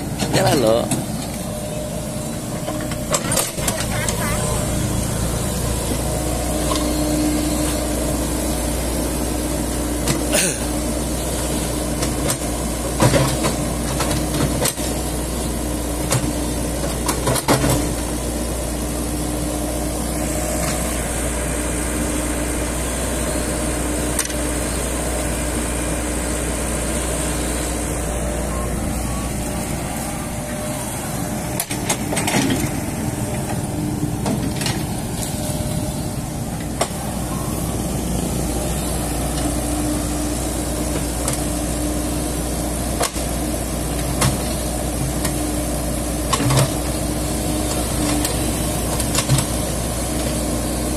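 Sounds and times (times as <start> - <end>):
engine whine: 0.0 - 50.9
excavator diesel engine running: 0.0 - 50.9.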